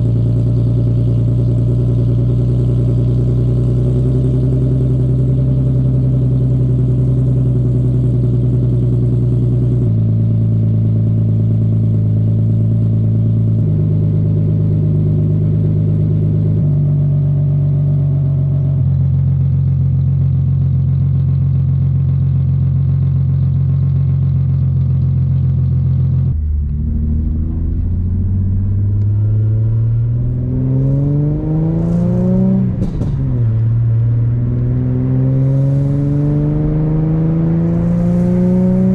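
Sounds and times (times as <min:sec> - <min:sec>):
car engine idling: 0:00.0 - 0:38.9
car engine revving: 0:25.2 - 0:38.9.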